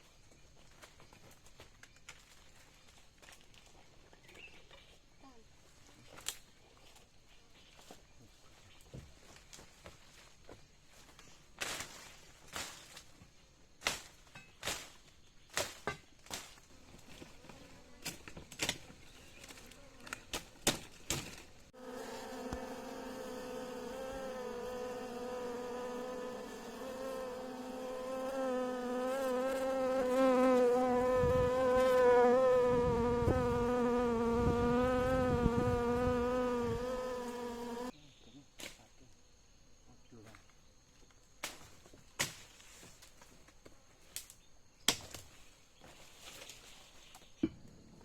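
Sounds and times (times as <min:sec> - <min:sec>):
bees buzzing: 0:21.8 - 0:37.9.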